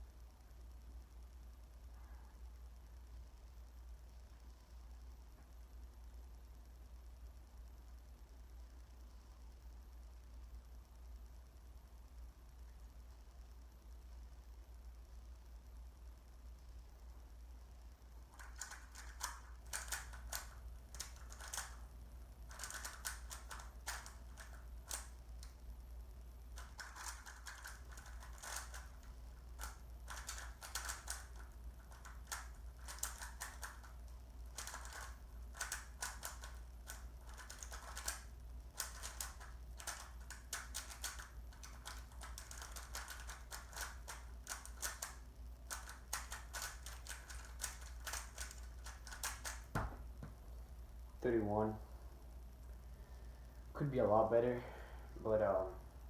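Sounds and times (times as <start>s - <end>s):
puzzle cube plastic clicking: 18.3s - 21.8s, 22.5s - 25.6s, 26.5s - 49.8s.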